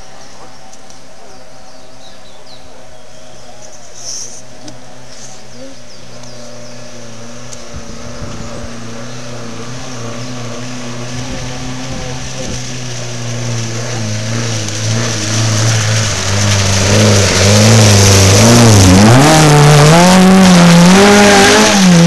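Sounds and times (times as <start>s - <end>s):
car engine approaching: 0.0s - 22.0s
small birds chirping: 0.2s - 7.1s.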